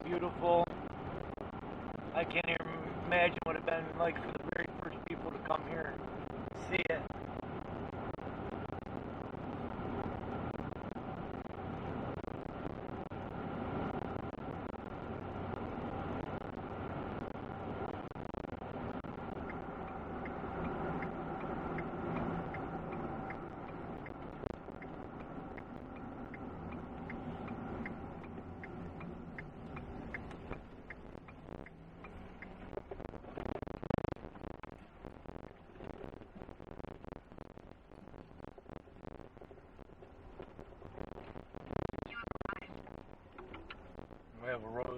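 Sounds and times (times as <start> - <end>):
regular ticking: 0.0 - 44.9
truck cabin road and engine hum: 0.0 - 44.9.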